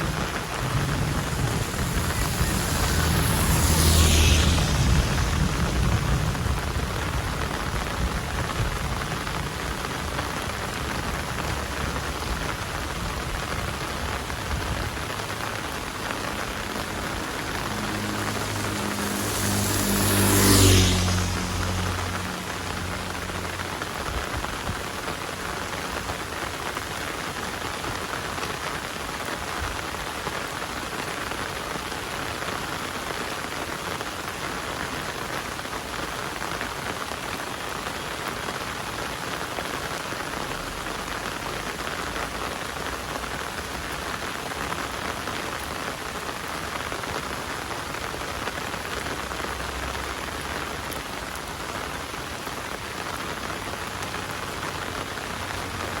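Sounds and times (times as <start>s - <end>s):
passing engine hum: 0.0s - 9.4s, 14.8s - 25.9s
heavy rain falling: 0.0s - 56.0s.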